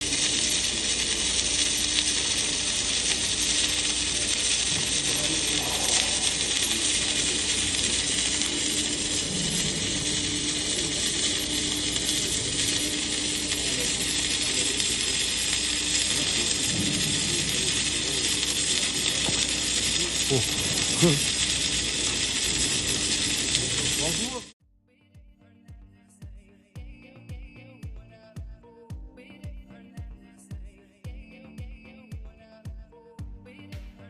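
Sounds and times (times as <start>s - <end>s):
steady hum: 0.0s - 24.6s
welding arc crackling: 0.0s - 24.6s.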